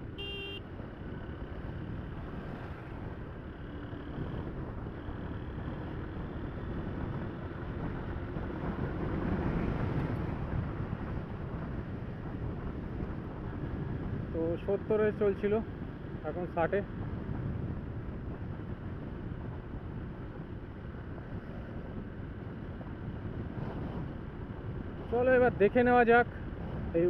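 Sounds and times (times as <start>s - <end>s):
motorcycle engine running: 0.0s - 9.3s
wind and road rush: 0.0s - 27.0s.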